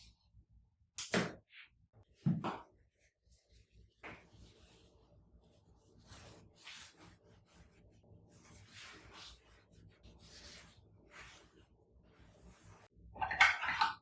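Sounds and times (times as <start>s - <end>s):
rubbing strokes on a surface: 3.2s - 13.0s.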